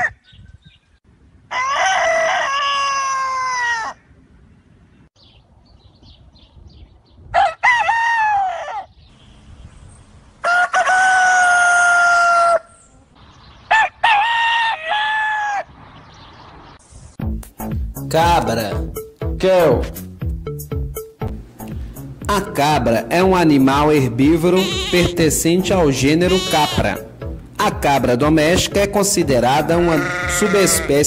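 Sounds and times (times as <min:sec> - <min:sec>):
roosters crowing: 0:00.0 - 0:00.2, 0:01.4 - 0:04.1, 0:07.3 - 0:09.0, 0:10.4 - 0:13.0, 0:13.6 - 0:16.1, 0:24.3 - 0:27.2, 0:29.4 - 0:31.0.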